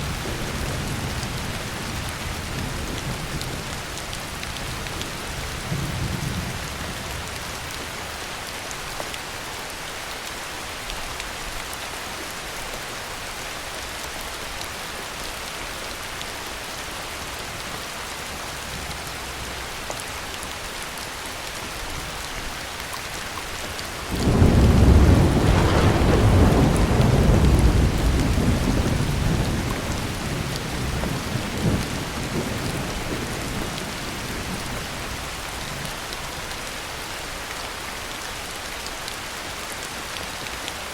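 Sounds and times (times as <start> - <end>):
heavy rain hissing: 16.0 - 40.9
rolling thunder: 24.1 - 35.2.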